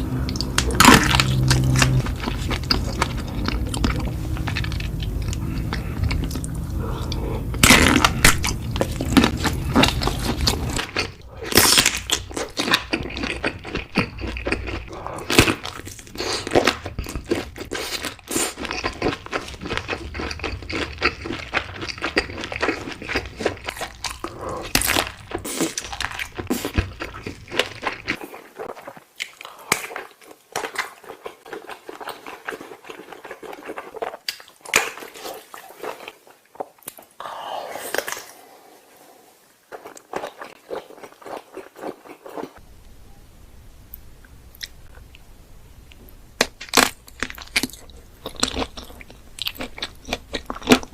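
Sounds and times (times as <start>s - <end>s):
person chewing with wet mouth clicks: 0.2s - 7.6s.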